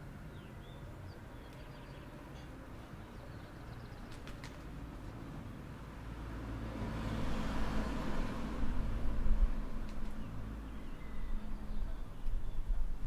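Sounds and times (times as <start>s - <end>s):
car passing: 5.9s - 11.7s.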